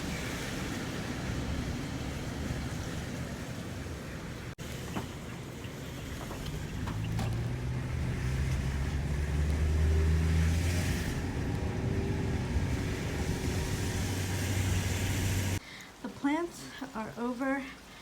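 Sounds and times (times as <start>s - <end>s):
car engine hum: 4.6s - 15.6s
tyre hiss on wet road: 12.6s - 16.0s.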